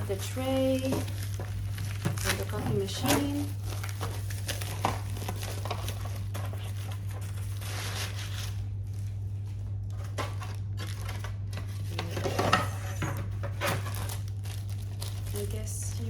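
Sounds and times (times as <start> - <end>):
packaging rustling: 0.0 - 16.0
steady low hum: 0.0 - 16.0.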